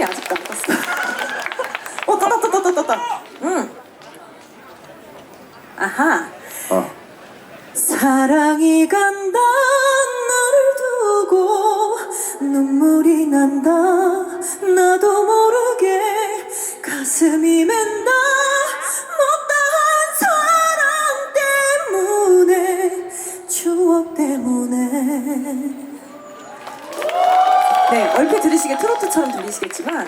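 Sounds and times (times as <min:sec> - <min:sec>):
woman singing a cappella: 0:07.8 - 0:26.1.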